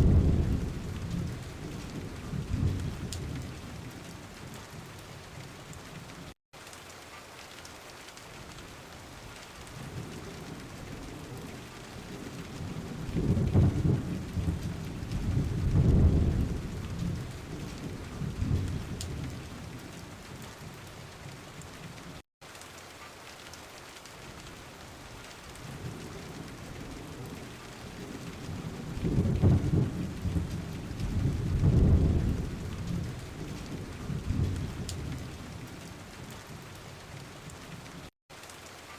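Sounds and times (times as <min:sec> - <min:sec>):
rolling thunder: 0:00.0 - 0:04.9, 0:09.8 - 0:20.0, 0:25.6 - 0:36.6
steady rain: 0:00.0 - 0:38.9.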